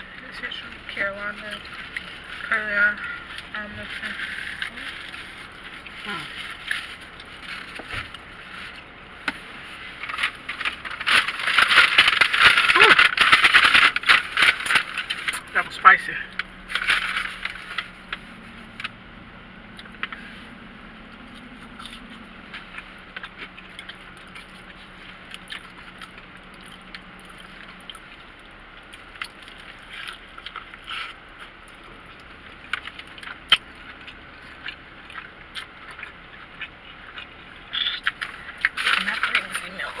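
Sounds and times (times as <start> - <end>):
low steady hum: 0.0 - 40.0
people chewing and lip-smacking: 19.7 - 40.0.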